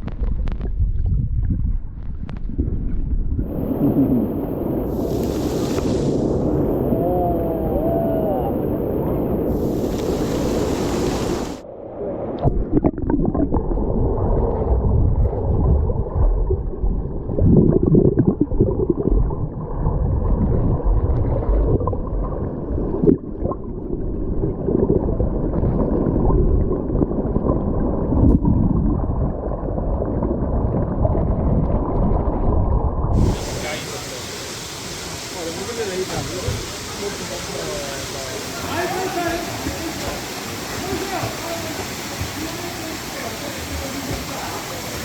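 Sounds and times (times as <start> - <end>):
underwater water churning: 0.0 - 45.0.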